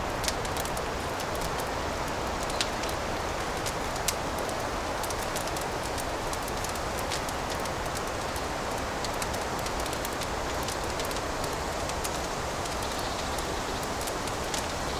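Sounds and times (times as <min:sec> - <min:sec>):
wood fire crackling: 0:00.0 - 0:14.9
sharp pops of fire: 0:00.1 - 0:14.8.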